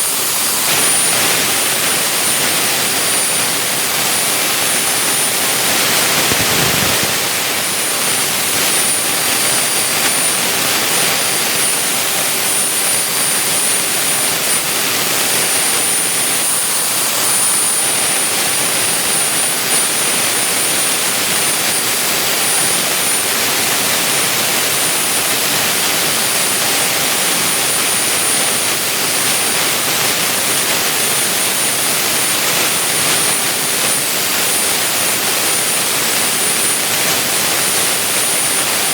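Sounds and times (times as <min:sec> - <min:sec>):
milling machine hissing and whining: 0:00.0 - 0:19.9.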